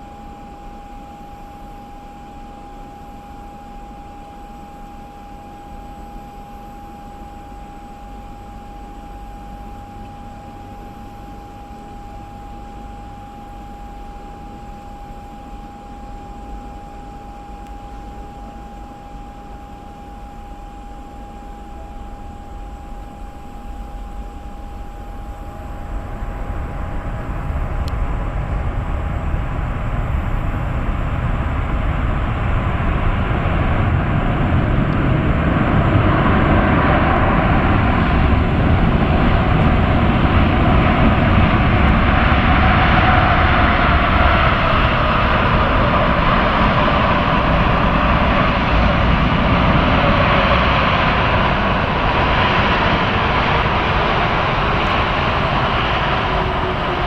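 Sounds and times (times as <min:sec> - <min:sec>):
jet engine whine: 0:00.0 - 0:57.0
jet engines roaring: 0:21.8 - 0:57.0.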